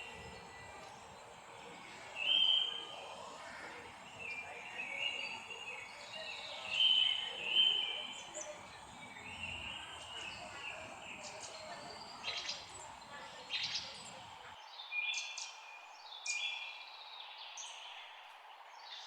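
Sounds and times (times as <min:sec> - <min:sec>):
outdoor background hiss: 0:00.0 - 0:14.6
birds singing whistled notes: 0:00.0 - 0:16.8.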